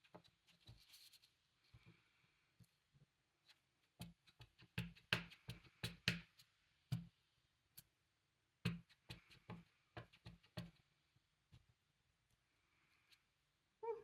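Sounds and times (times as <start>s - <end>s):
light taps and clicks of craft items: 2.6s - 7.9s.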